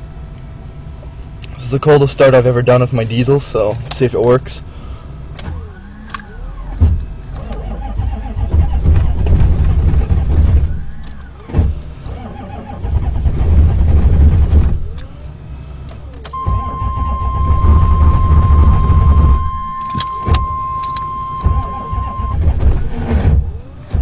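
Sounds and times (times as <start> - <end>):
starter motor grinding: 5.3 - 24.0
steady electronic tone: 16.3 - 22.4.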